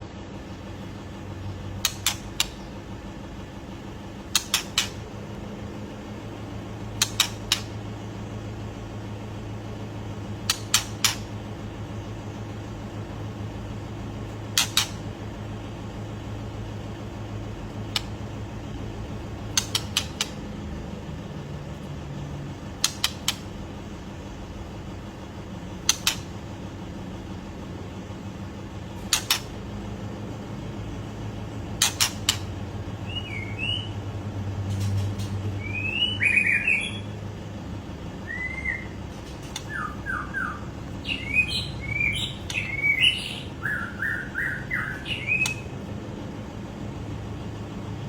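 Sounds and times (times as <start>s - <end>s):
bird clicking calls: 1.8s - 2.8s, 4.3s - 5.1s, 6.9s - 7.9s, 10.4s - 11.3s, 14.5s - 15.1s, 17.8s - 18.2s, 19.5s - 20.4s, 22.8s - 23.5s, 25.8s - 26.4s, 29.0s - 29.6s, 31.7s - 33.5s, 38.3s - 45.7s.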